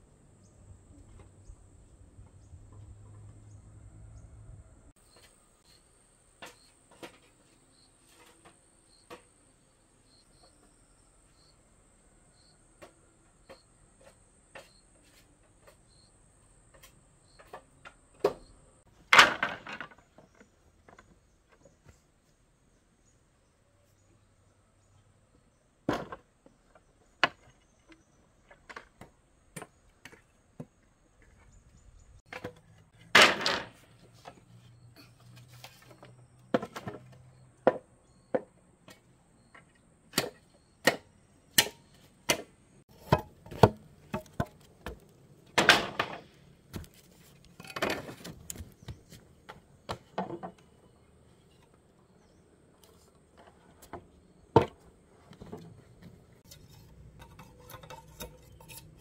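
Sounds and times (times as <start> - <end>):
sharp chopping strikes: 40.1 - 42.5.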